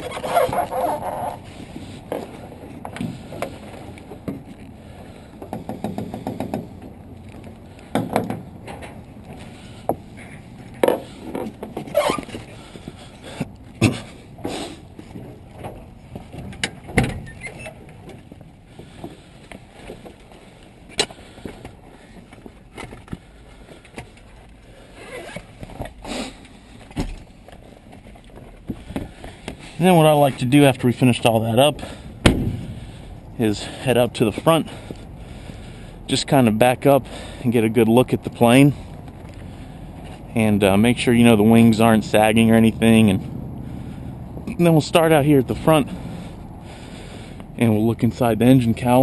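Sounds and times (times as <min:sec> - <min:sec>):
handling knocks and scrapes: 0:00.0 - 0:04.8.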